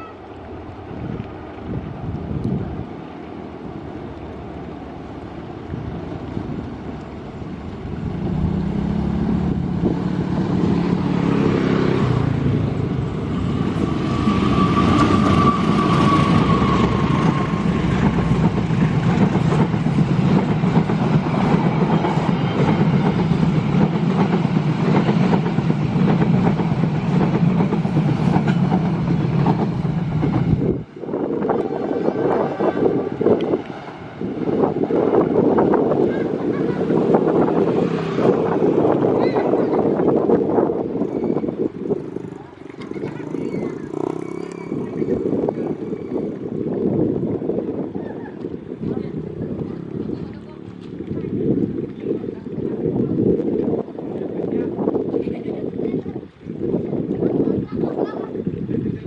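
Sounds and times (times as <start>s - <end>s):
train engine hum: 0.0s - 59.0s
train wagons clacking on rails: 12.9s - 30.6s.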